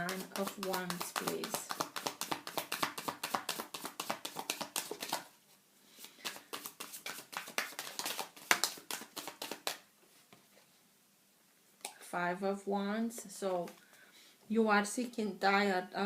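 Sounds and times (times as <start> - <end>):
cards being shuffled: 0.0 - 5.3, 6.0 - 9.9.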